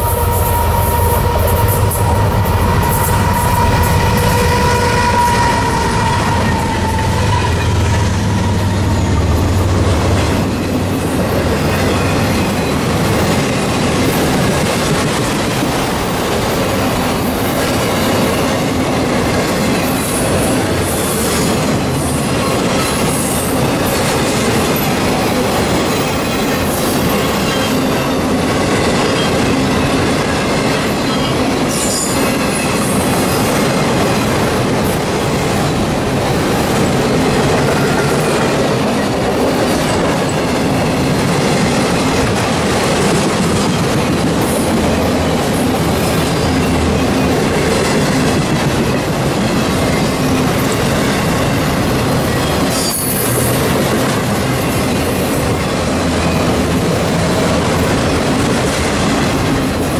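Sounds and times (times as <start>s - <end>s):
wheels squealing: 0.0s - 11.0s
diesel locomotive engine drone: 0.0s - 59.9s
steel wheels rumbling on rails: 0.0s - 59.9s.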